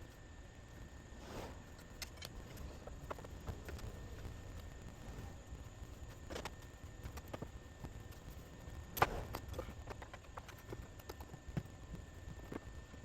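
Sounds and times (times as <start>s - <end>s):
clicks and knocks of hand work: 8.9s - 11.8s.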